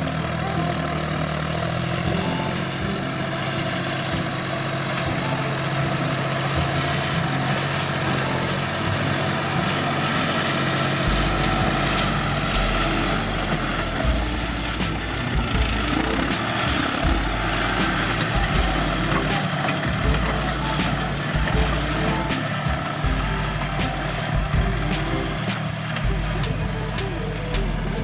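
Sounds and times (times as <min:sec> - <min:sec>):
tractor engine running: 0:00.0 - 0:28.0
deep low rumble: 0:11.0 - 0:25.4.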